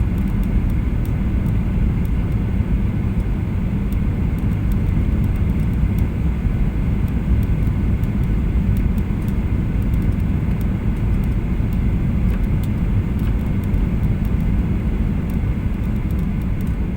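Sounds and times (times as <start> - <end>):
low rumble of aircraft engines: 0.0 - 16.9
faint light ticks: 0.2 - 2.5, 3.2 - 6.1, 7.0 - 14.6, 15.2 - 16.8.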